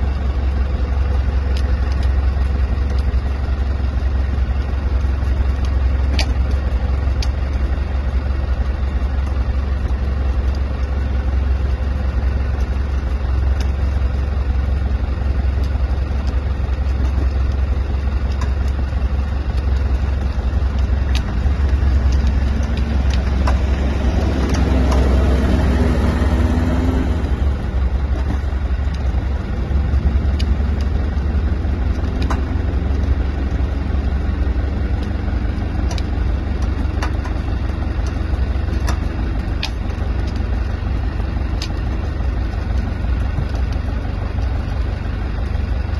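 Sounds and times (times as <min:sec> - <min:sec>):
vehicle engine rumbling: 0:00.0 - 0:45.9.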